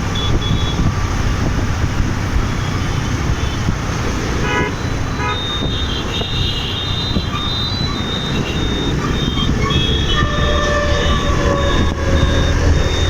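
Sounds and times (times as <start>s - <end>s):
motorbike road and wind rumble: 0.0s - 13.0s
vehicle horn toots: 0.1s - 0.9s, 4.4s - 12.6s
shrill high-pitched horn: 4.5s - 12.8s.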